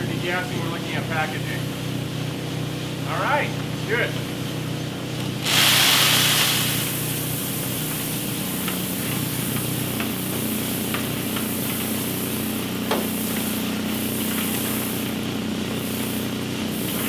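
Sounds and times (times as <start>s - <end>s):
coffee roaster humming and rushing: 0.0s - 17.0s
loud hiss: 5.4s - 17.0s.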